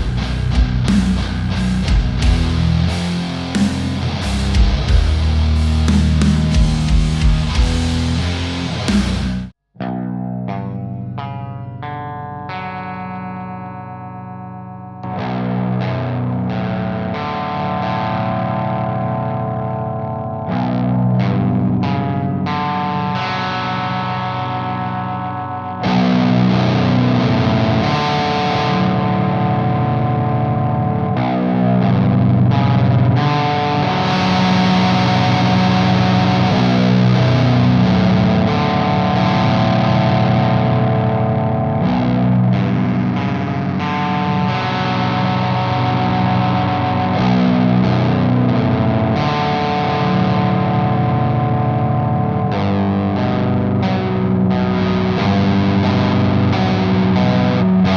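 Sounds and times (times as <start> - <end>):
distorted electric guitar riff: 0.0 - 57.9.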